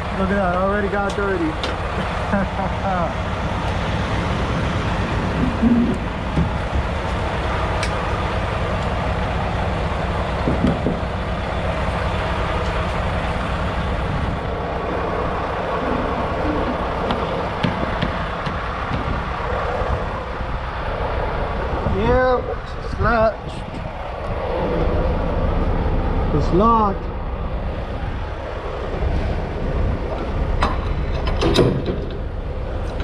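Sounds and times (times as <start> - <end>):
diesel engine idling: 0.0 - 33.0
sharp clicks and knocks: 0.5 - 1.8, 16.6 - 19.2, 30.1 - 32.3.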